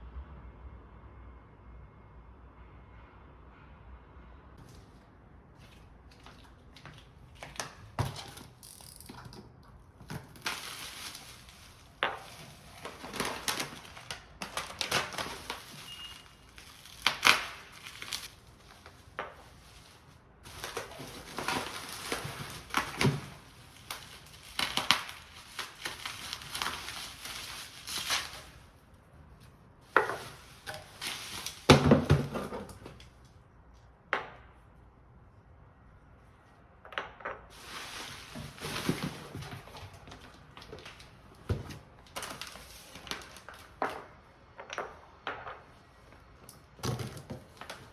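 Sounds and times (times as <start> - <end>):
packaging crinkling and rustling: 5.6 - 28.8, 29.8 - 33.1, 37.5 - 44.2, 46.6 - 47.9.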